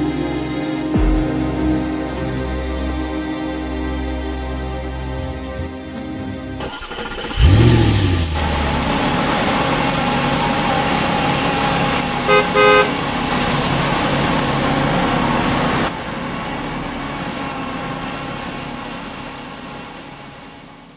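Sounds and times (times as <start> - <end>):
short horn toots: 12.3 - 13.0.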